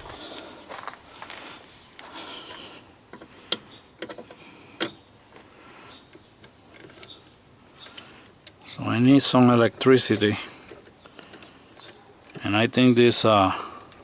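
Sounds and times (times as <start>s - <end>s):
sharp clicks and knocks: 3.1s - 12.9s.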